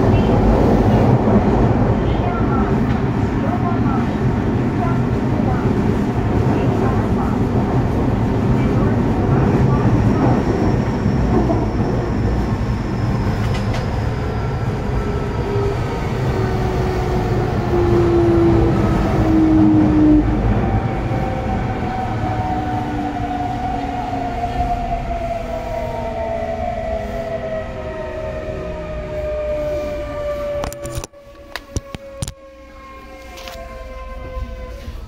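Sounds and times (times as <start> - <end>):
train running gear rumble: 0.0 - 26.6
train inverter whining: 8.8 - 35.0.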